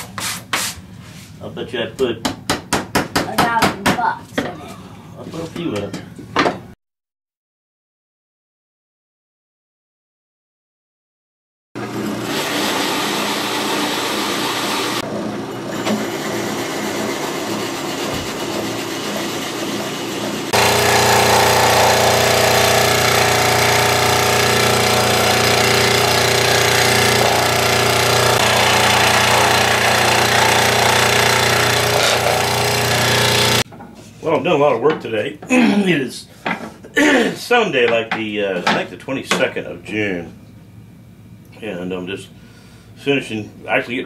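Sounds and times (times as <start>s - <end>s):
power tool motor running: 11.8s - 33.6s.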